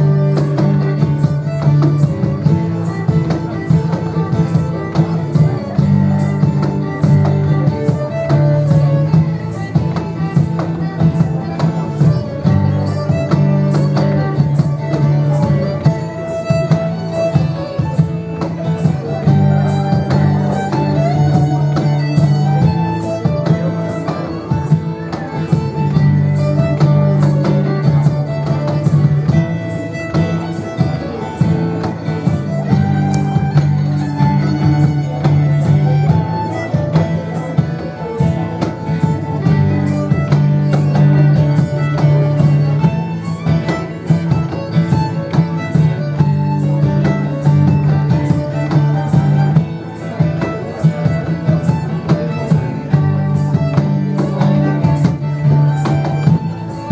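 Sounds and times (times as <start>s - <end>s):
folk band playing a dance tune: 0.0s - 56.9s.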